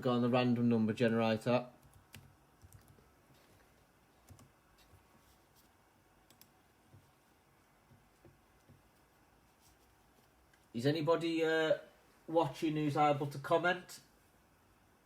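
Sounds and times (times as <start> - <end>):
computer mouse and keyboard clicks: 1.8 - 3.1, 4.2 - 5.0, 6.2 - 6.6.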